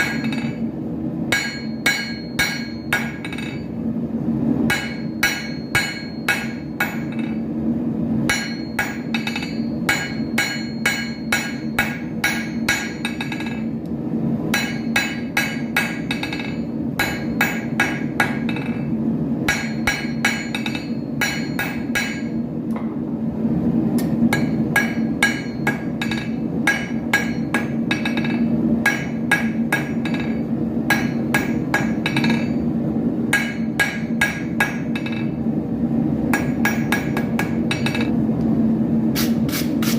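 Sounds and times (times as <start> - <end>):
hammer striking iron on anvil: 0.0 - 0.7, 1.3 - 3.7, 4.7 - 7.4, 8.3 - 13.8, 14.5 - 18.9, 19.5 - 22.9, 24.3 - 32.6, 33.3 - 35.4, 36.3 - 38.1
steady low hum: 0.0 - 39.9.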